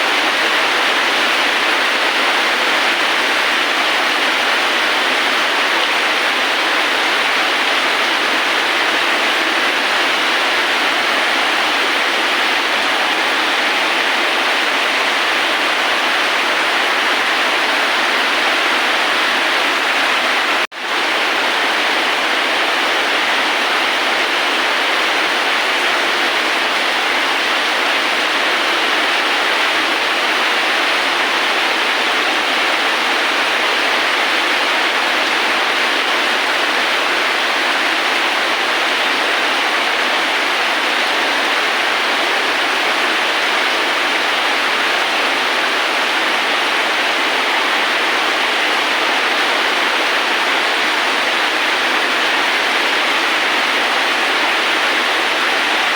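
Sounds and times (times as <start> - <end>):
steady rain hiss: 0.0 - 55.9.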